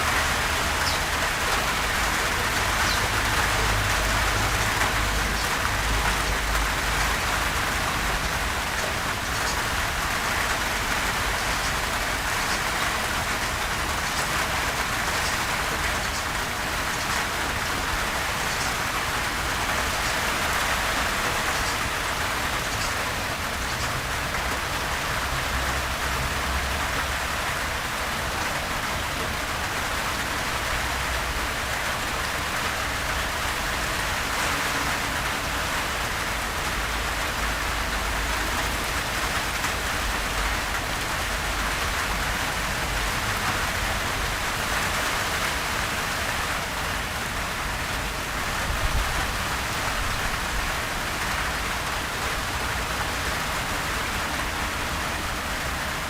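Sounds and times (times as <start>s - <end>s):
gentle rain falling: 0.0s - 56.0s.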